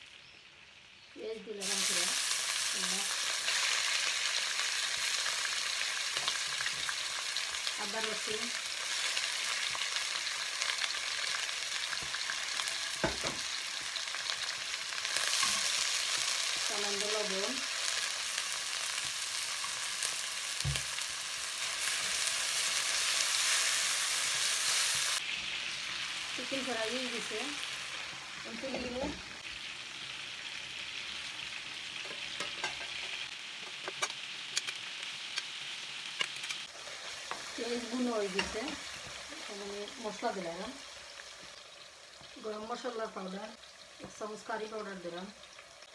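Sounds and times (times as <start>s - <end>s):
chicken sizzling in hot oil: 0.0s - 45.9s.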